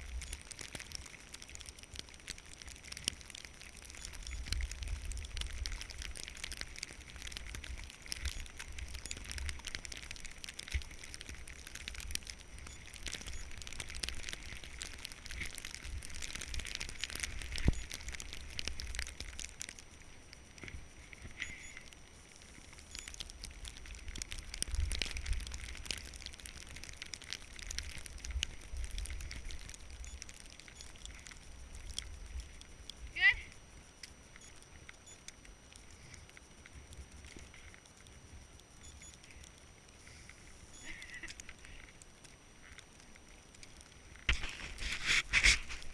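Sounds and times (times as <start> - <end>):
skis sliding over snow: 42.8 - 45.9.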